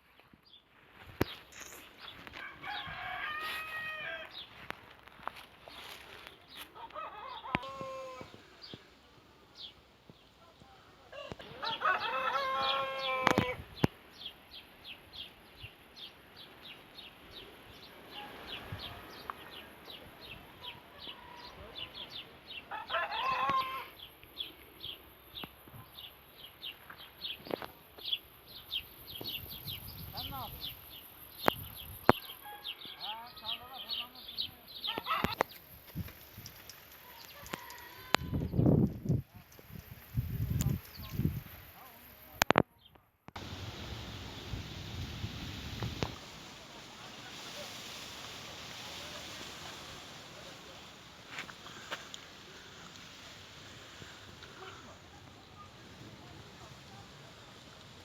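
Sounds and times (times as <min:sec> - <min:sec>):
small birds chirping: 0:00.1 - 0:03.1, 0:03.8 - 0:43.1
rooster crowing: 0:02.3 - 0:04.5, 0:06.8 - 0:08.4, 0:11.1 - 0:13.6, 0:18.1 - 0:19.2, 0:22.7 - 0:24.0, 0:32.2 - 0:33.6, 0:37.1 - 0:38.5.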